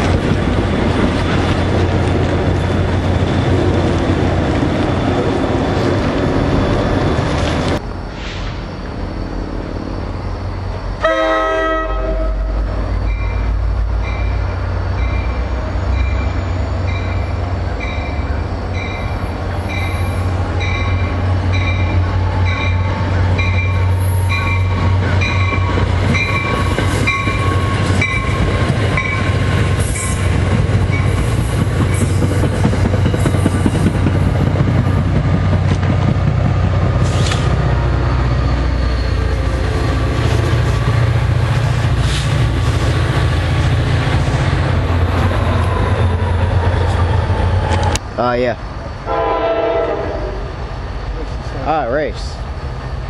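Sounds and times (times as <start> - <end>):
diesel train rumbling past: 0.0 - 53.0
train horn note: 11.0 - 12.6, 49.1 - 50.5.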